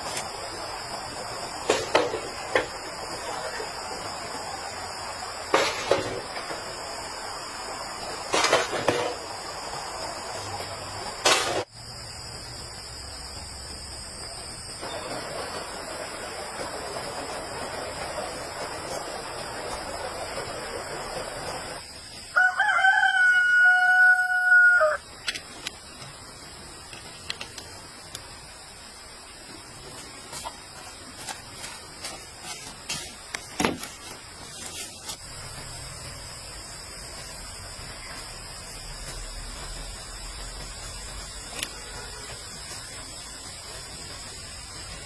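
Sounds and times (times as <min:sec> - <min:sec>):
rooster crowing: 0:22.3 - 0:25.1.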